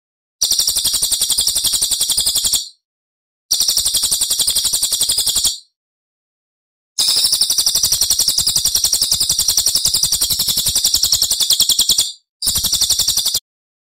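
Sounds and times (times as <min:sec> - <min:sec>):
songbird trilling: 0:07.0 - 0:13.4.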